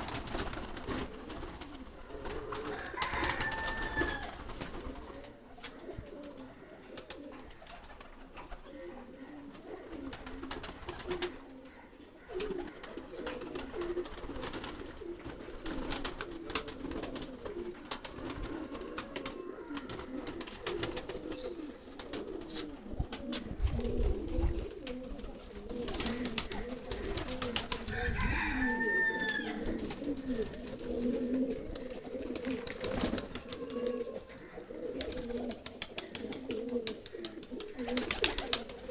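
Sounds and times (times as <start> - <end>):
higher pigeon calls: 0.0 - 38.9
pigeons cooing: 0.0 - 38.9.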